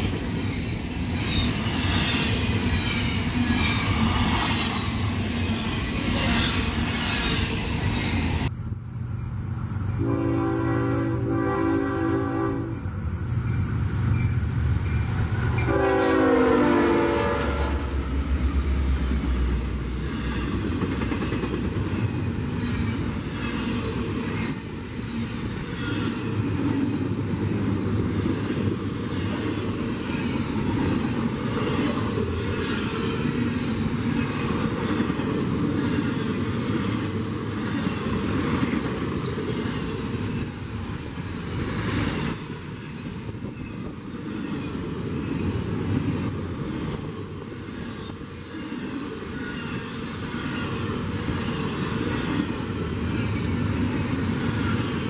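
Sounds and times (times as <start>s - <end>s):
freight train wheels rumbling: 0.0s - 55.0s
train horn: 10.0s - 12.8s, 15.6s - 18.1s.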